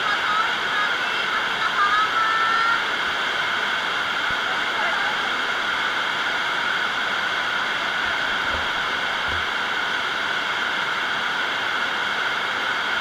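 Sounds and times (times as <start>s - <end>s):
heavy rain falling: 7.7s - 10.4s.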